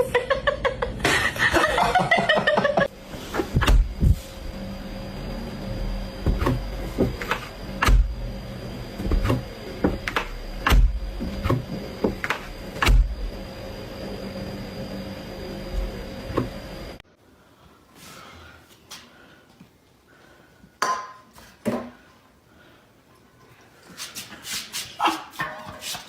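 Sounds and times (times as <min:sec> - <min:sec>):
electrical hum: 0:00.0 - 0:19.4.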